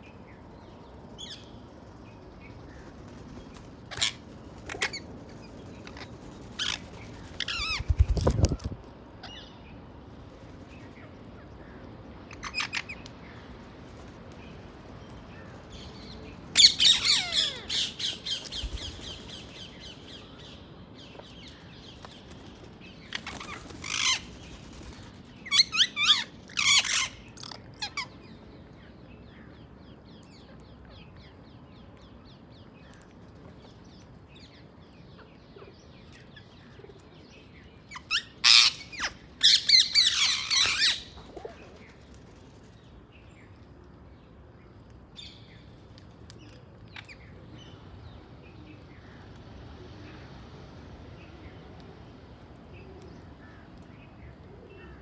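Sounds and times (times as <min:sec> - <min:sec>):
faint outdoor background: 0:00.0 - 0:55.0
birds chirping and squawking: 0:03.6 - 0:09.4, 0:16.6 - 0:20.0, 0:23.0 - 0:28.2, 0:37.9 - 0:42.0.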